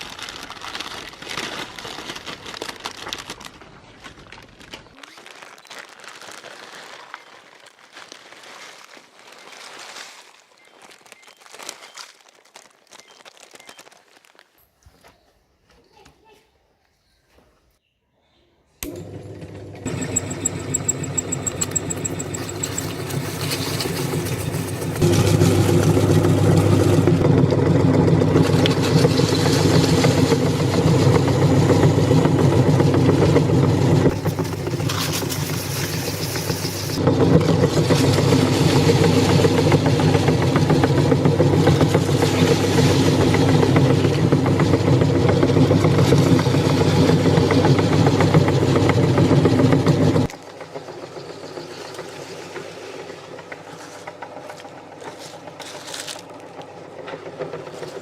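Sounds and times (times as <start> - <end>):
electric meat grinder motor: 18.8 - 54.8.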